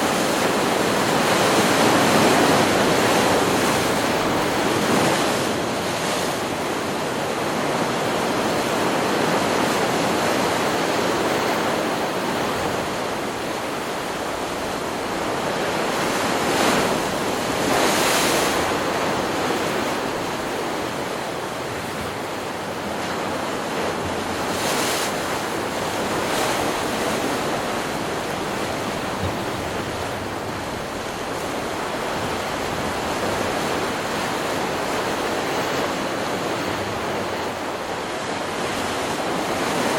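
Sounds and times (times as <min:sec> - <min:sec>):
ocean surf breaking waves: 0:00.0 - 0:39.9.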